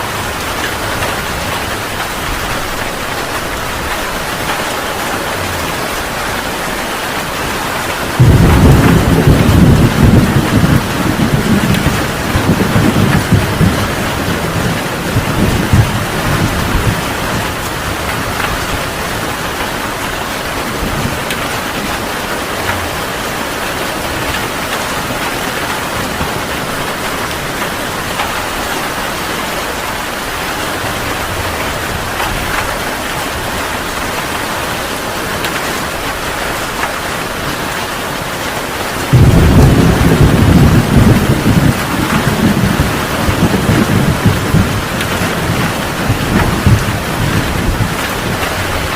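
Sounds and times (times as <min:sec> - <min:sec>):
heavy rain falling: 0:00.0 - 0:48.9
deep roll of thunder: 0:08.1 - 0:19.7, 0:39.1 - 0:48.9.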